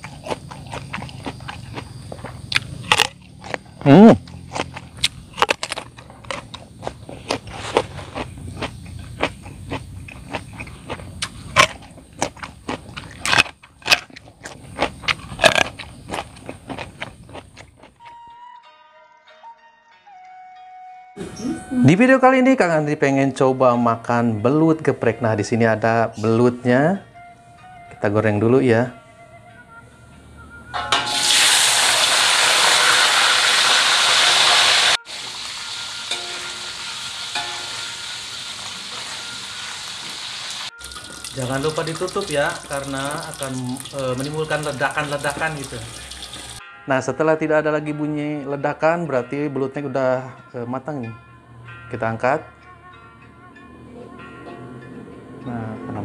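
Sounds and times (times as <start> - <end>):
crisp crunching bites: 0.0 - 18.0
eels sizzling in hot oil: 31.1 - 46.6.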